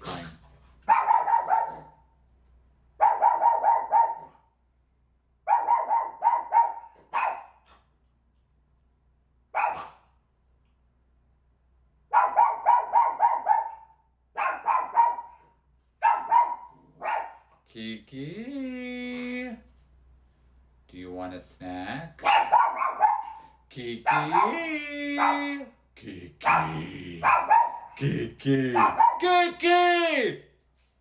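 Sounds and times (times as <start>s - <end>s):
dog barking: 0.9s - 2.1s, 3.0s - 4.5s, 5.4s - 7.8s, 9.5s - 10.2s, 12.1s - 17.6s, 22.2s - 25.6s, 26.4s - 28.0s, 28.7s - 29.3s.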